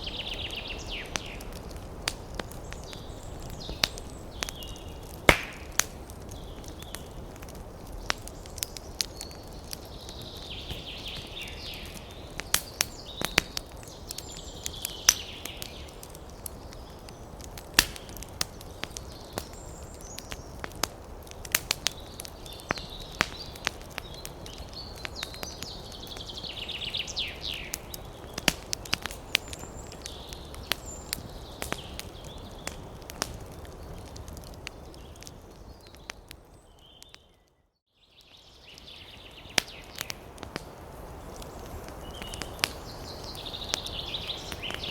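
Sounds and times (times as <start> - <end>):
wood fire crackling: 0.0 - 44.9.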